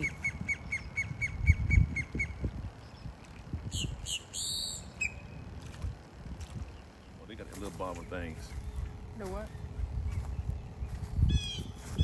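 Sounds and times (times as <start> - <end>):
bird chirps: 0.0 - 5.4
harsh bird squawks: 3.7 - 5.4, 11.3 - 12.0.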